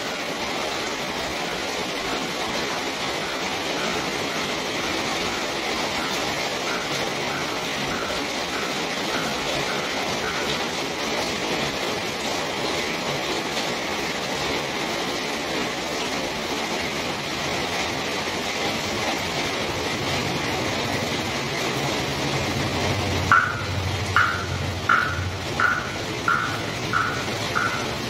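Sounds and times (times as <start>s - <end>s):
steady rain hiss: 0.0s - 28.0s
short repeated tones: 23.3s - 28.0s.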